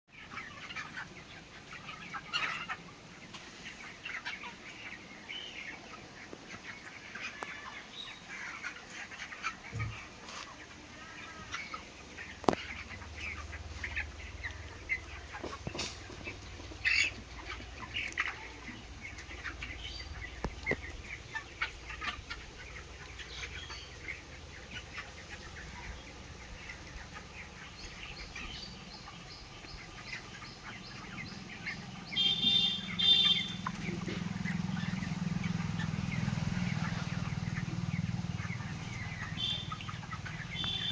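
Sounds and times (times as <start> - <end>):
chickens clucking and chirping: 0.1 - 40.9.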